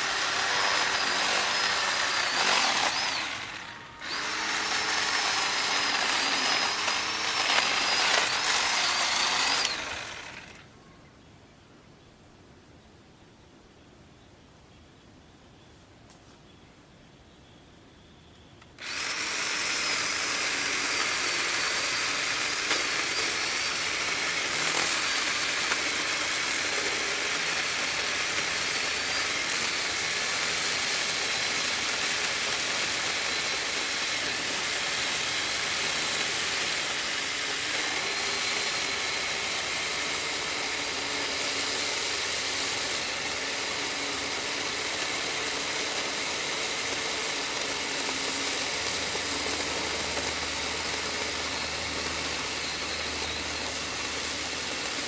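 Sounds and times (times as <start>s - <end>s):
chainsaw running at high speed: 0.0s - 10.6s, 18.8s - 55.0s.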